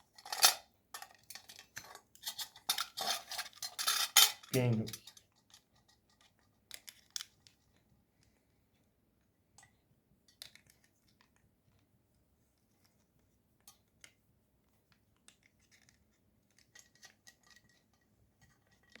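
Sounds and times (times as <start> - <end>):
small objects clicking and scraping: 0.0 - 8.3, 9.6 - 11.8, 15.2 - 19.0.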